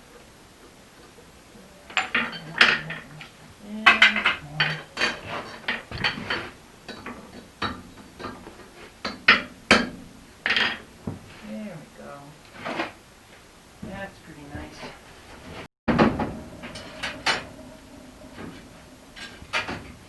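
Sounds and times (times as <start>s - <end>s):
hammer striking metal on anvil: 15.9s - 20.0s.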